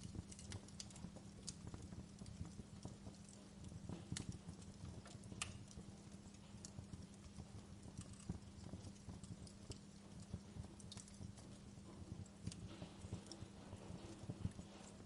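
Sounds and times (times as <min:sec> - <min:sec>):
faint steady hum: 0:00.0 - 0:15.0
wood fire crackling: 0:00.0 - 0:15.0.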